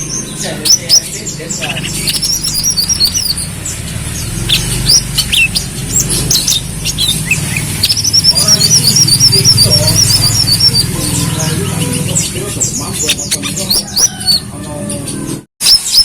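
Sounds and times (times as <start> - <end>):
bird chirping and trilling: 0.0 - 16.0.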